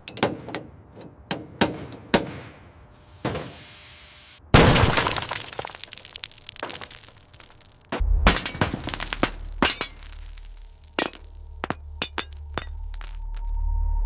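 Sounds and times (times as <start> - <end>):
sharp clinks and cracks: 5.7 - 13.6.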